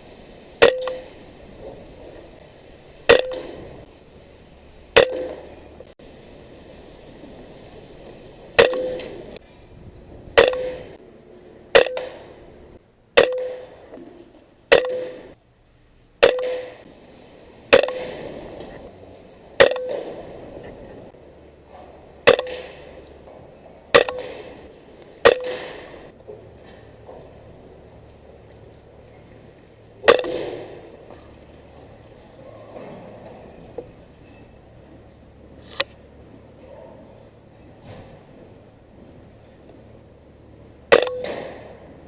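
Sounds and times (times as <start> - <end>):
air rifle shots: 3.0 - 3.9, 4.9 - 5.6, 8.6 - 9.4, 10.3 - 11.0, 11.7 - 12.4, 13.2 - 14.0, 14.7 - 15.4, 16.2 - 16.9, 17.7 - 18.8, 19.6 - 20.5, 22.2 - 23.0, 23.9 - 26.1, 30.0 - 31.1, 40.9 - 41.9.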